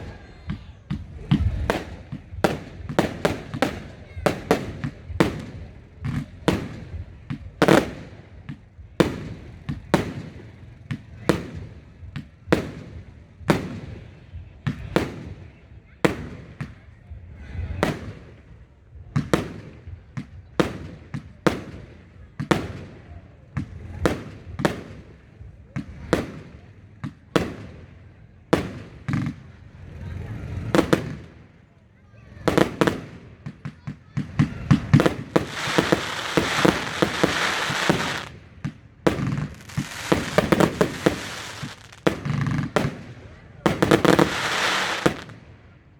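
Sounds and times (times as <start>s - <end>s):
fireworks banging: 0.0s - 15.4s, 16.1s - 45.9s.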